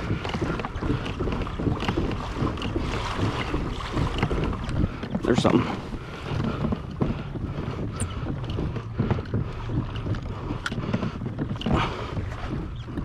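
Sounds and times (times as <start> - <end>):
steady low rumble: 0.0 - 13.0
water splashing against kayak hull: 0.0 - 13.0
wind buffeting microphone: 0.0 - 13.0.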